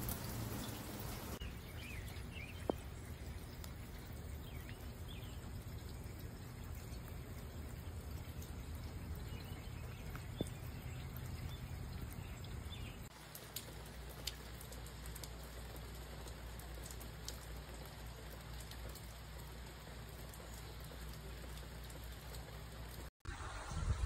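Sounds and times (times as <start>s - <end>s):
faint drip ticks: 0.0s - 23.1s
steady rain pattering: 0.0s - 23.7s.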